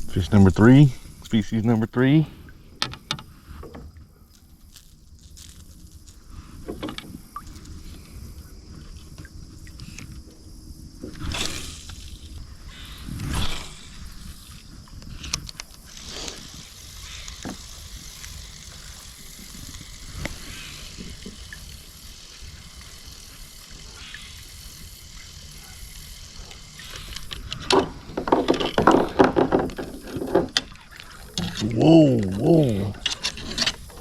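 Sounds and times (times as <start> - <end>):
fishing reel gears clicking: 11.2 - 27.8.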